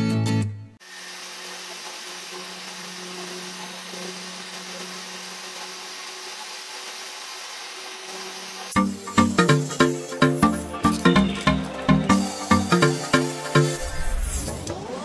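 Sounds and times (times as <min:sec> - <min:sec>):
power tool motor whirring: 0:00.8 - 0:10.5.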